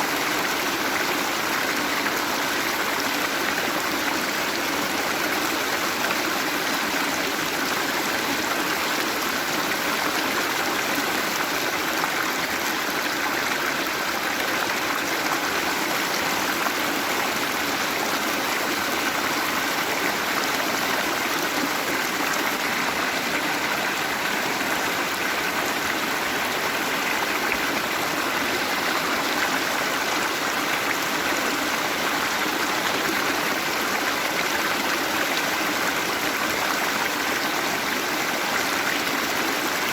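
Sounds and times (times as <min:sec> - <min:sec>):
waterfall roaring: 0:12.0 - 0:32.8.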